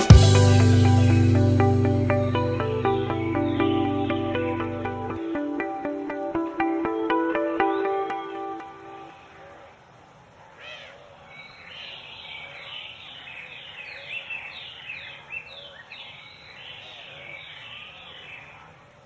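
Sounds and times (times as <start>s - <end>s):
high downward-sliding bird chirps: 0.0s - 5.4s.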